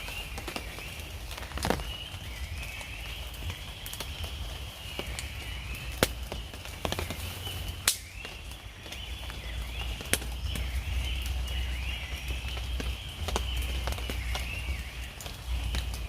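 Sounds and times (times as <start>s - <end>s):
high-pitched chirping chorus: 0.0s - 16.0s
steady low rumble: 0.0s - 16.0s.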